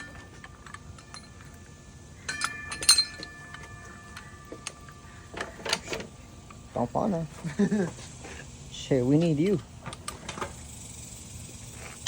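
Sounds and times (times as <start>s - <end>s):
metal hardware clinking: 0.0s - 6.6s
metal strikes ringing: 2.2s - 5.4s.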